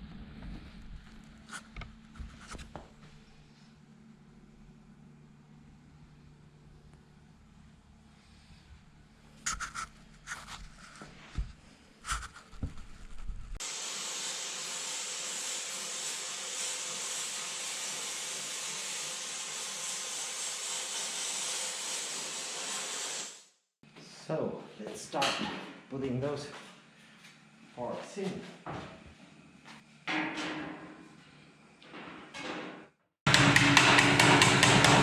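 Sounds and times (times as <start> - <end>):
spray paint hissing: 13.6 - 23.5.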